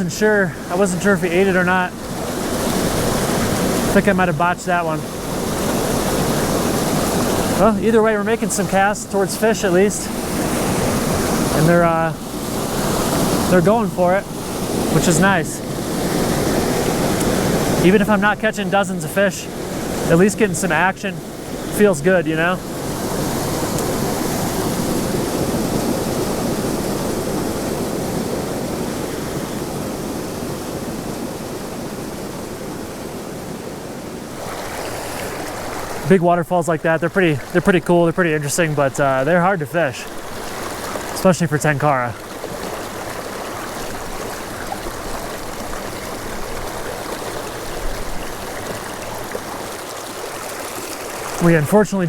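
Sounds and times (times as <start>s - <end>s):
creek and waterfall rushing: 0.0s - 52.0s
waterfall pouring into a pool: 34.3s - 36.2s, 40.0s - 51.7s.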